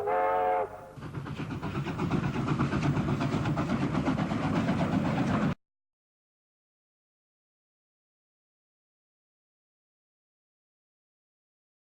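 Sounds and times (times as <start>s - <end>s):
steam locomotive whistle: 0.0s - 1.0s
steam locomotive exhaust beats: 0.0s - 5.6s.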